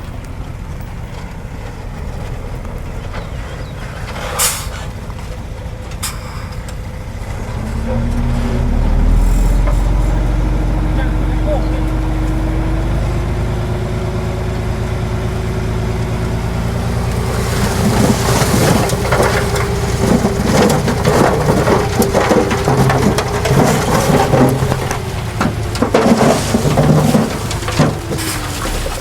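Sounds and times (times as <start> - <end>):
diesel machine engine running: 0.0 - 29.0
soil and stones tumbling: 16.1 - 29.0.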